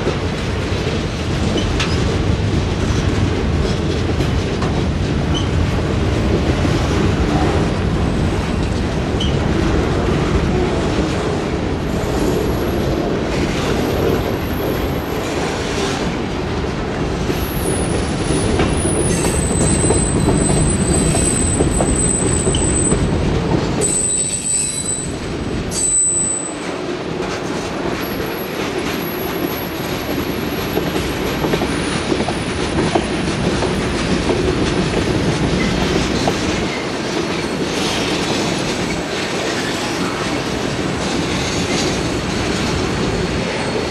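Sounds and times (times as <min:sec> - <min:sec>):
train wheels rumbling on rails: 0:00.0 - 0:43.9
train wheel squeal: 0:05.3 - 0:05.6, 0:09.2 - 0:09.4, 0:17.4 - 0:23.2, 0:23.8 - 0:26.8, 0:35.6 - 0:40.4, 0:43.4 - 0:43.9.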